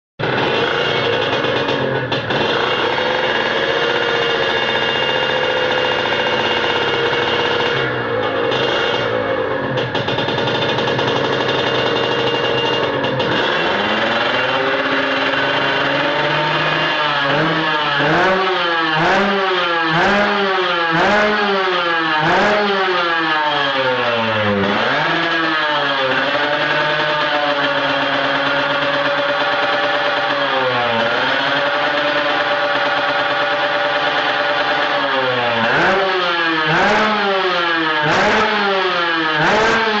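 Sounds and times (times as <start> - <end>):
motorcycle engine revving and idling: 0.2 - 40.0.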